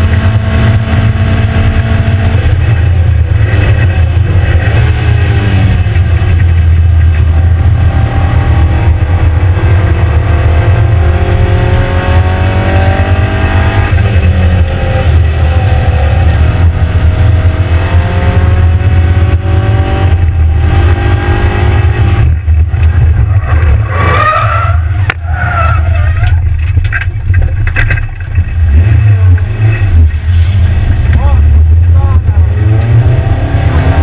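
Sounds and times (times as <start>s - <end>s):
car engine accelerating hard: 0.0s - 34.0s
heavy low rumble: 0.0s - 34.0s.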